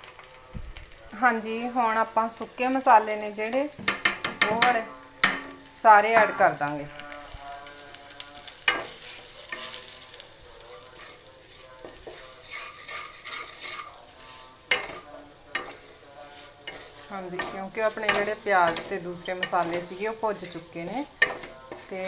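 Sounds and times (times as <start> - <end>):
masala sizzling in oil: 0.0 - 22.0
spatula knocking against pan: 3.8 - 5.6
wooden spatula stirring: 8.6 - 22.0.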